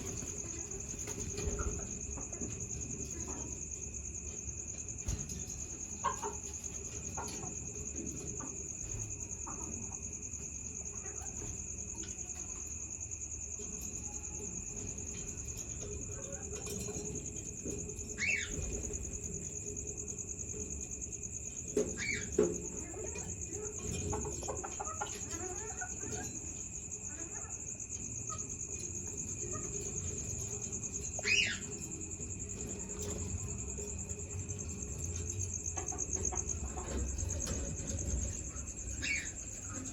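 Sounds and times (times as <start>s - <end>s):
high-pitched insect trill: 0.0s - 39.9s
finches chirping: 18.1s - 19.0s, 21.3s - 23.8s, 28.4s - 33.6s, 35.0s - 39.9s.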